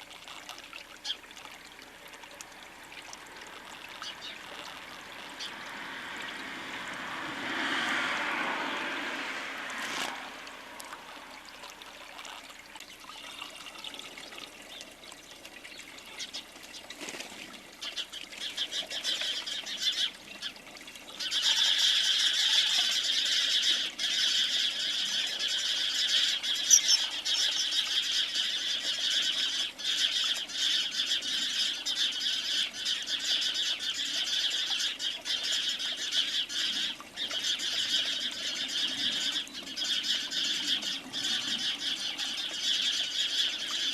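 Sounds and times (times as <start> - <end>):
small birds chirping: 21.2 - 43.9.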